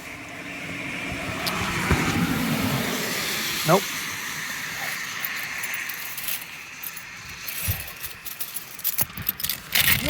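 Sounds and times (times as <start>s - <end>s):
keys jingling: 4.8s - 10.0s.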